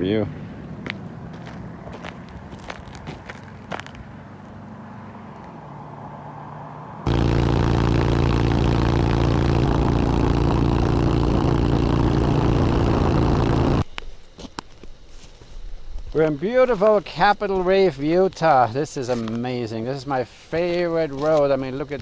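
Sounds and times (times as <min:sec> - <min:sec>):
motorcycle engine running: 0:07.0 - 0:13.8
low steady hum: 0:07.0 - 0:14.3.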